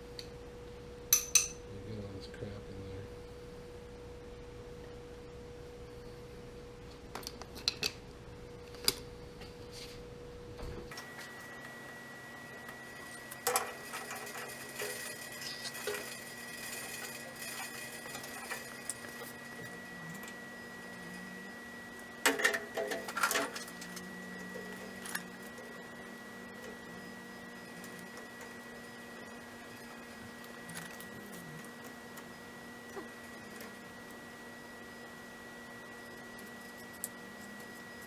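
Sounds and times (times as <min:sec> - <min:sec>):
metal parts and tools clattering: 0:22.2 - 0:24.0.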